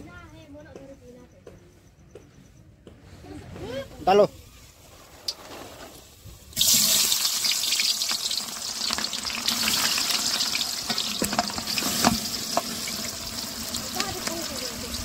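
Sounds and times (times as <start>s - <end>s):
loud sizzle of frying: 4.8s - 15.0s.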